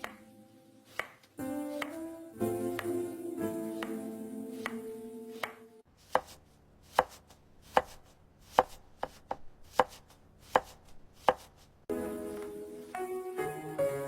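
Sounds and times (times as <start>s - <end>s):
knife chopping on cutting board: 0.9s - 2.0s, 5.4s - 11.6s.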